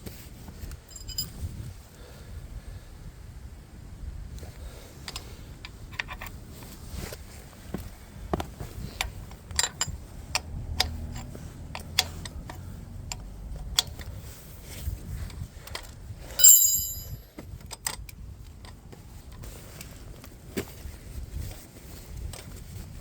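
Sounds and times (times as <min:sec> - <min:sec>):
light clicks and knocks of tools: 0:05.0 - 0:06.7
sharp ringing metal clink: 0:16.4 - 0:17.2.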